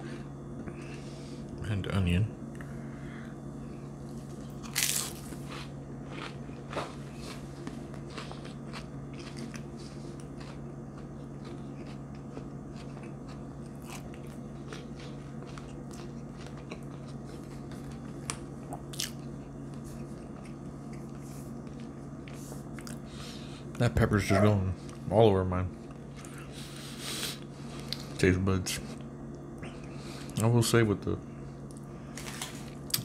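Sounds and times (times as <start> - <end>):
steady low hum: 0.0 - 33.0
person chewing crackers: 4.2 - 23.2, 31.6 - 33.0.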